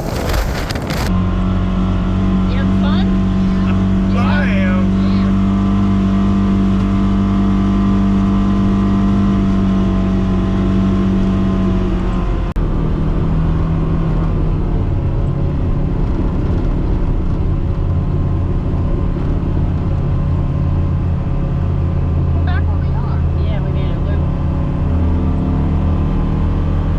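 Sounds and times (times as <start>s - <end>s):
tyre and trail noise: 0.0s - 1.3s
vehicle engine running: 0.0s - 26.9s.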